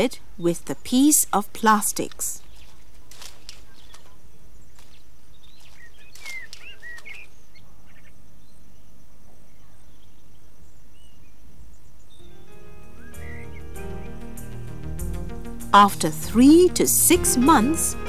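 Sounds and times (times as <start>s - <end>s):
bird chirping: 0.0s - 18.0s
faint clicks and rustles: 2.0s - 7.3s.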